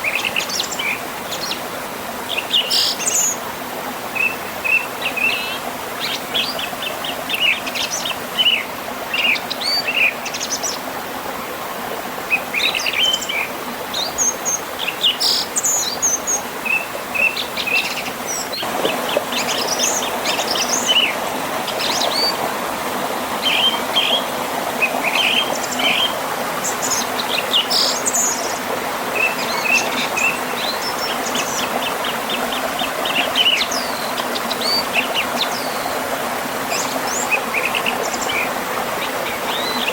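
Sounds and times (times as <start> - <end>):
river running past waterfall: 0.0 - 39.9
birds chirping and trilling: 2.3 - 3.4, 12.3 - 22.4, 23.4 - 36.0, 36.7 - 39.9.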